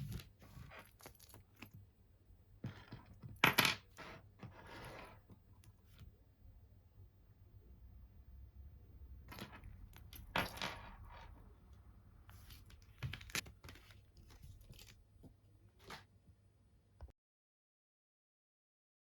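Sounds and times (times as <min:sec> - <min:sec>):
small items rustling and clicking: 0:12.3 - 0:15.1.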